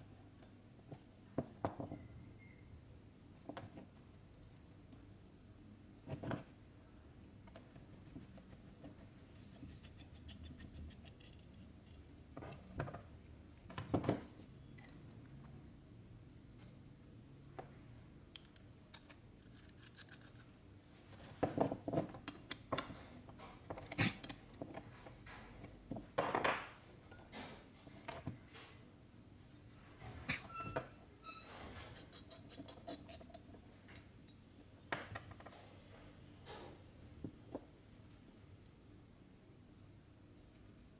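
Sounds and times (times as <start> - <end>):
small metal parts clicking: 18.4 - 20.6.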